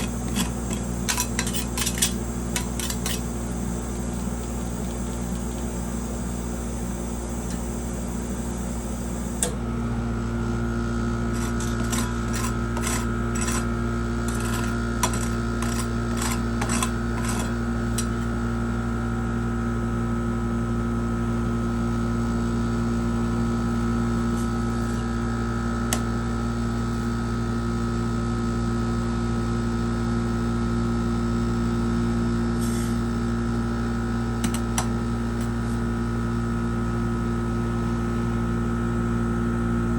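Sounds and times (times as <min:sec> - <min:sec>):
electric motor hum and whine: 0:00.0 - 0:39.9.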